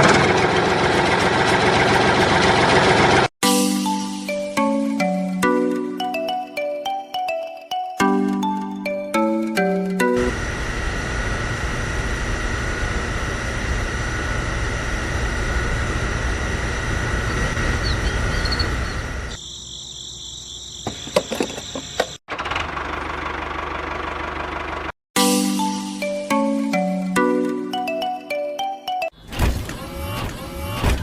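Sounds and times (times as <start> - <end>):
motor with wavering high whine: 10.2 - 19.4, 29.6 - 31.0
small motors whirring: 29.5 - 31.0.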